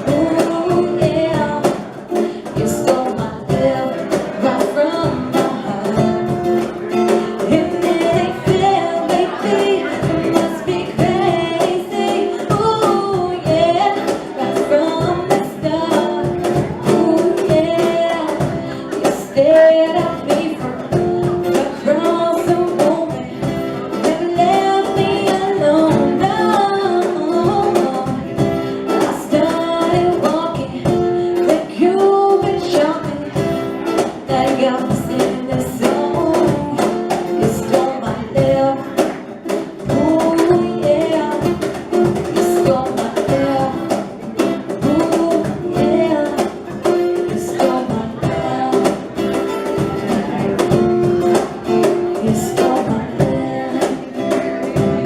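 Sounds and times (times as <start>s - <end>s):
person singing: 0.0s - 55.0s
reggae band playing: 0.0s - 55.0s.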